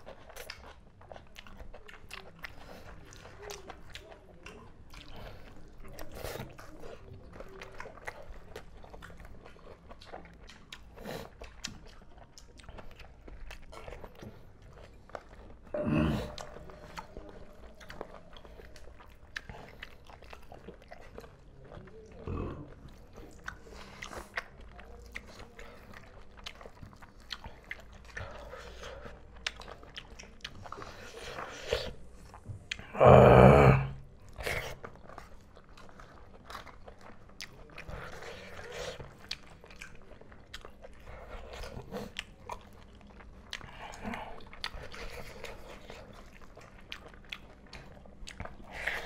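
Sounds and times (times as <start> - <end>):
wet clicks of fingers mixing rice: 0.0 - 15.4
people chewing and biting: 0.0 - 49.0
wet mouth clicks and crunches: 34.2 - 49.0.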